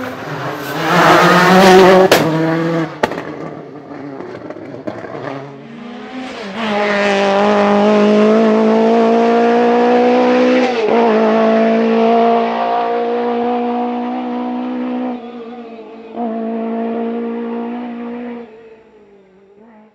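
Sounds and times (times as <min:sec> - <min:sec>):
rally car engine revving high: 0:00.0 - 0:18.7.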